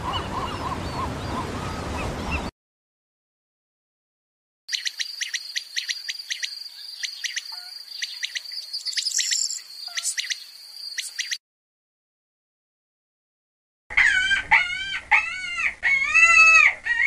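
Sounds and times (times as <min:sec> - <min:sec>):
crickets chirping: 0:04.7 - 0:11.4.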